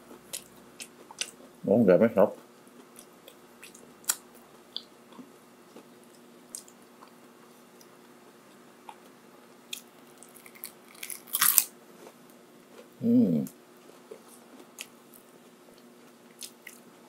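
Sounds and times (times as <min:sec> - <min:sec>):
person chewing and biting: 0:09.7 - 0:11.7, 0:15.8 - 0:16.9.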